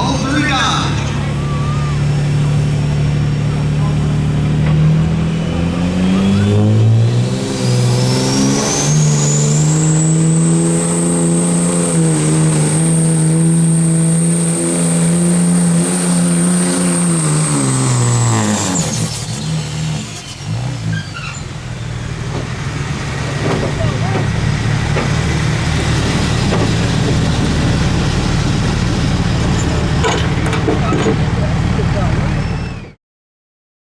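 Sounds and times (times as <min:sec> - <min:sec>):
turbocharger whistle: 0:00.0 - 0:02.6, 0:05.7 - 0:22.0, 0:32.2 - 0:33.0
truck engine at full throttle: 0:00.0 - 0:33.0.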